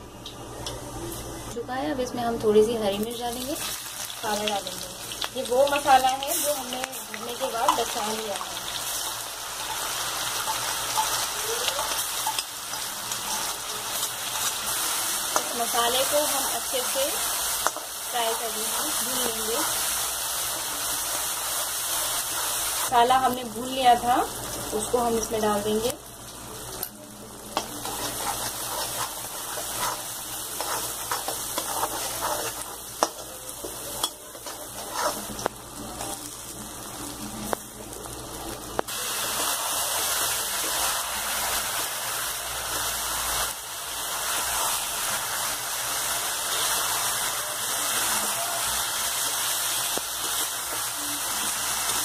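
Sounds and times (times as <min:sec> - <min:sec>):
spices sizzling in hot oil: 0:00.2 - 0:52.0
spoon scraping pan: 0:27.6 - 0:35.5.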